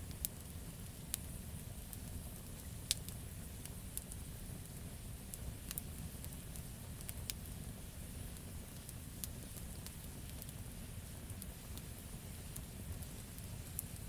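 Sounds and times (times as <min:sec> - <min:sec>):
wood crackling and popping: 0:00.0 - 0:04.2
low rumble of flames: 0:00.0 - 0:14.0.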